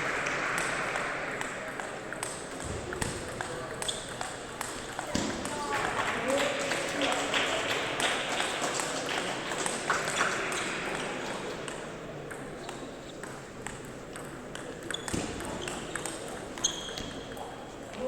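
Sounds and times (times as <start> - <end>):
murmur of voices: 0.0 - 18.0.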